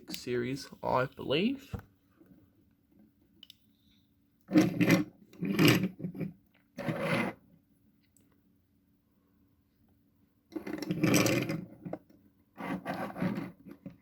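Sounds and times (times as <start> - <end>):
toy trucks scraping: 4.5 - 7.4, 10.5 - 12.0, 12.6 - 14.0.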